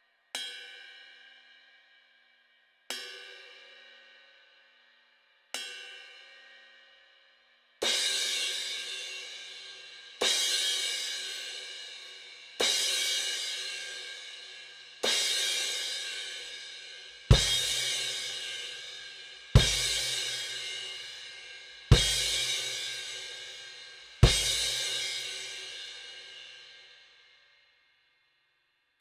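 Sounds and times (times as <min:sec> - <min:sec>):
cymbal struck and ringing: 0:17.3 - 0:19.0, 0:19.6 - 0:26.4.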